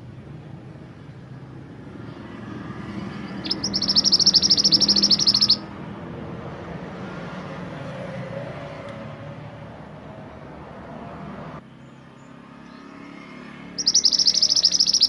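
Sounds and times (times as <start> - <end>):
songbird trilling: 3.1 - 5.8, 13.8 - 15.0.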